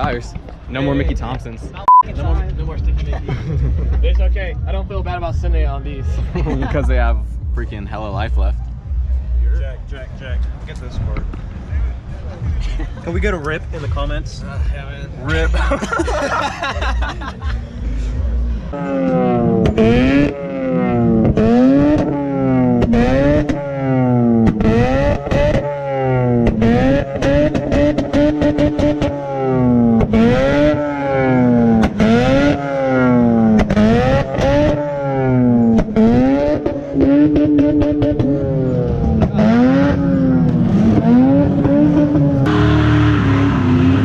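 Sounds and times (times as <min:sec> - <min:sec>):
car engine revving: 0:03.6 - 0:44.0.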